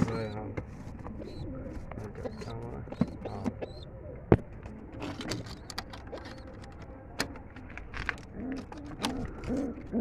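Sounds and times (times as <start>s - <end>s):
pigeons cooing: 1.1s - 6.6s, 8.2s - 10.0s.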